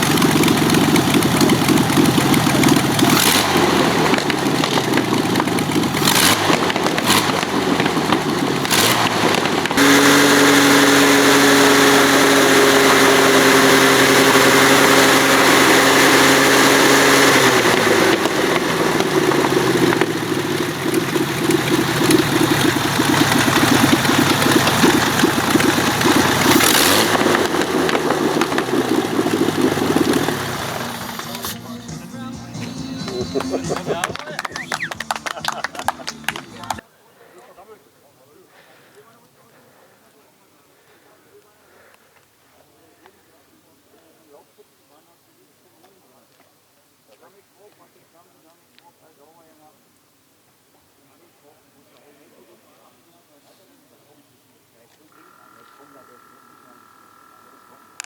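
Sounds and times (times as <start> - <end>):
aircraft engine running: 0.0 - 36.8.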